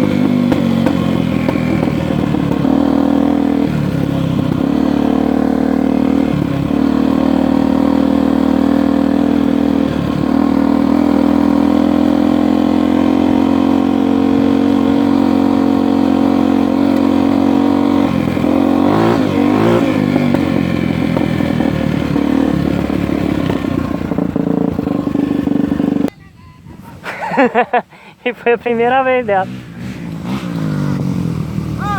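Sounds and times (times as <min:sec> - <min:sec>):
dirt bike engine running: 0:00.0 - 0:26.2, 0:27.2 - 0:31.9.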